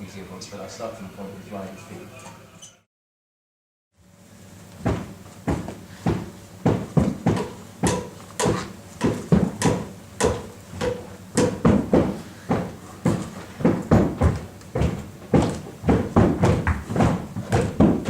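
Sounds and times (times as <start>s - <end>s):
feet stamping on a floor: 4.8s - 18.0s.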